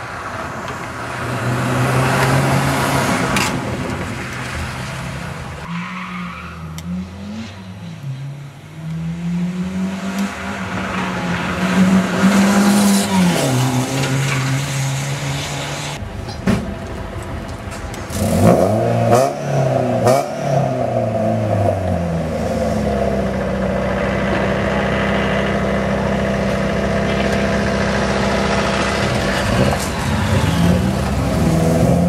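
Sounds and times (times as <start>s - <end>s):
rally car engine under throttle: 6.5s - 16.1s, 17.1s - 32.0s
engine revving: 6.6s - 16.0s, 18.1s - 32.0s.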